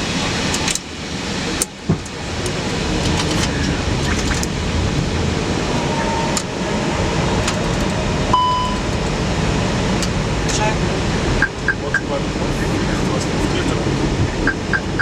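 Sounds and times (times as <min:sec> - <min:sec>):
airflow and air-conditioning: 0:00.0 - 0:15.0
short high tone: 0:08.3 - 0:08.8.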